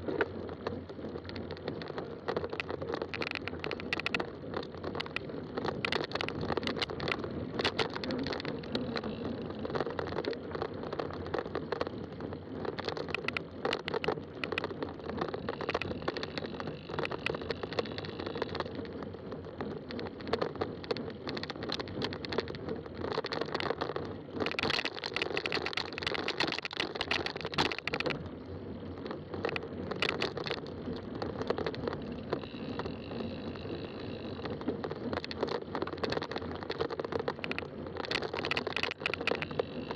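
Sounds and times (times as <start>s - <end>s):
bike frame rattles and knocks: 0.0s - 28.2s, 29.0s - 39.9s
bike tyres rolling on rough trail: 0.0s - 39.9s.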